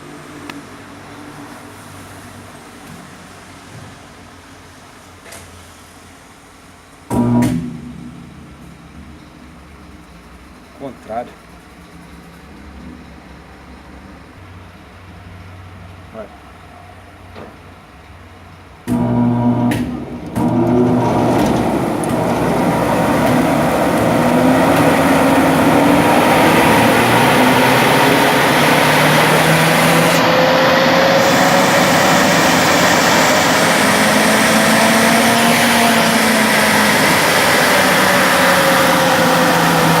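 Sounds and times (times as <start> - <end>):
exhaust blower rushing air: 7.1 - 11.2, 18.9 - 40.0.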